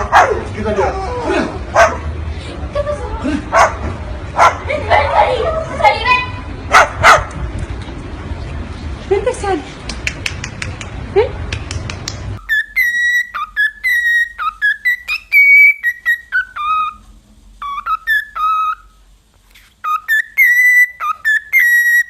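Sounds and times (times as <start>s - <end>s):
parrot whistling a tune: 12.4s - 17.0s, 17.6s - 19.0s, 19.8s - 22.0s.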